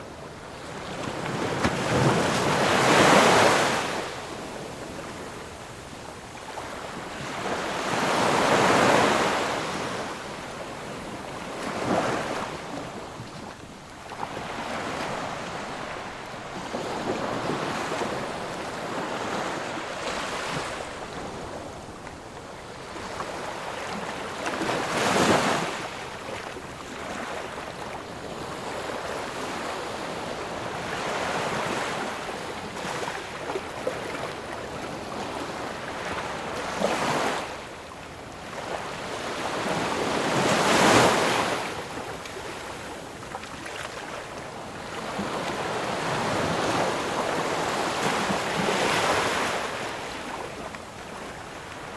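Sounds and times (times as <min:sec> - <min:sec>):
ocean waves crashing: 0:00.7 - 0:04.8.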